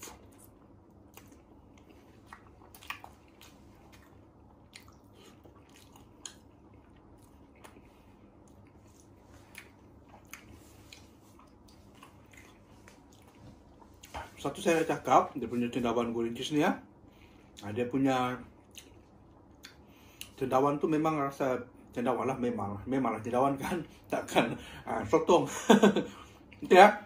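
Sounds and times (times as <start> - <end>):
person chewing with soft crunches: 0.0 - 15.6, 17.0 - 20.5, 26.2 - 26.8.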